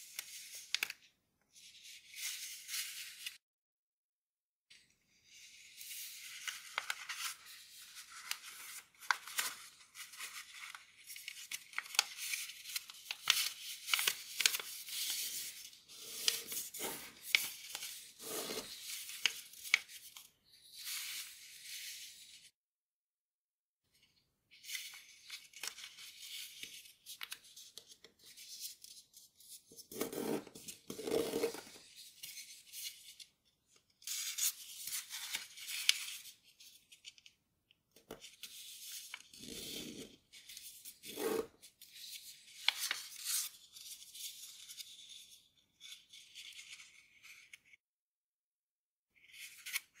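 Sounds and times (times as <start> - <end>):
paper rustling and crinkling: 5.9 - 20.2.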